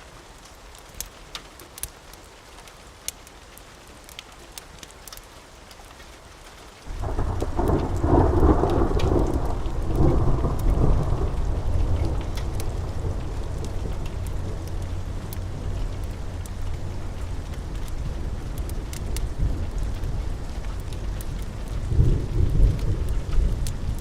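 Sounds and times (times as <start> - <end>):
steady rain: 0.0 - 24.0
long thunder roll: 6.9 - 24.0.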